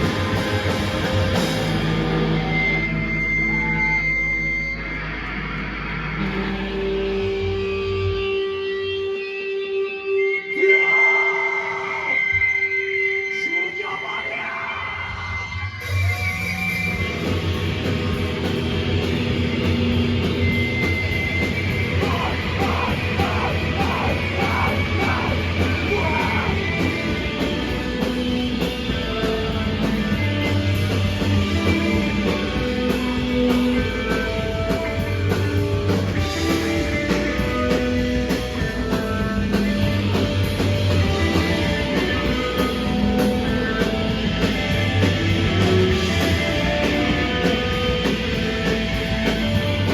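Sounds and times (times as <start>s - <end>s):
rock band playing live: 0.0s - 13.8s, 15.0s - 49.9s
person singing or yelling: 10.5s - 12.6s, 21.9s - 27.4s.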